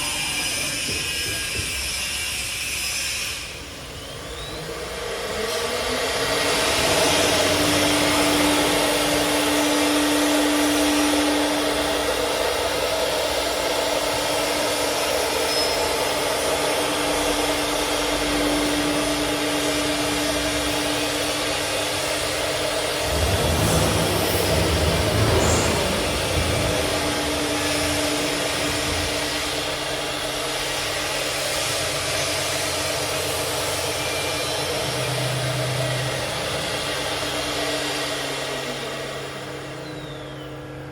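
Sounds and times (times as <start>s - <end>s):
router spindle whine: 0.0s - 40.9s
loud even rushing noise: 21.3s - 37.4s.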